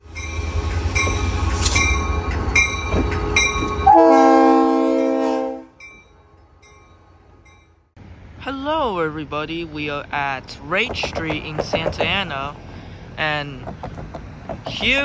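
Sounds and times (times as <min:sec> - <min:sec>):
train bell ringing: 0:00.0 - 0:07.9
train rumbling: 0:00.0 - 0:15.0
multi-note train horn: 0:03.8 - 0:05.8.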